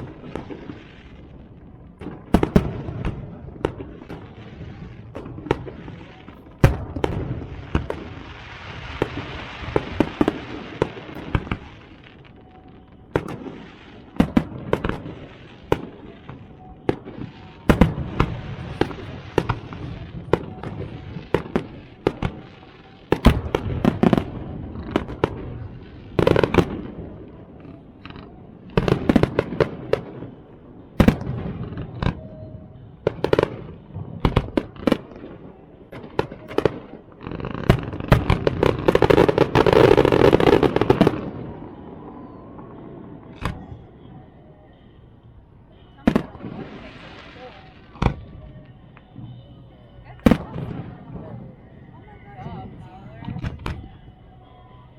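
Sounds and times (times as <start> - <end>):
hissing crackle: 0.0 - 30.0
fireworks bangs: 0.0 - 54.9.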